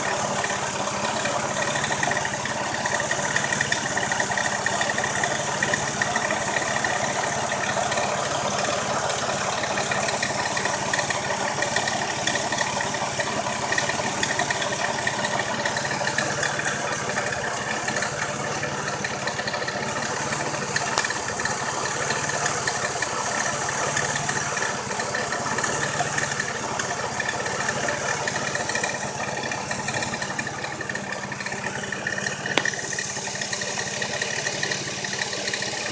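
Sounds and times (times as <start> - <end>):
engine idling: 0.0 - 35.9.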